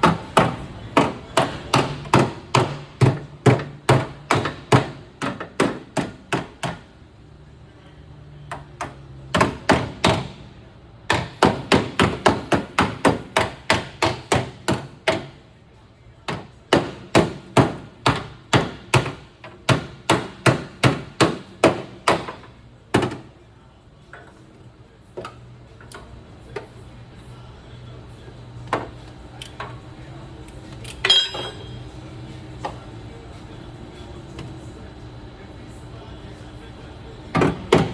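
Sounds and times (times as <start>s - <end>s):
ringing metallic hit: 31.0s - 31.9s
hammer striking sheet metal: 31.1s - 31.8s.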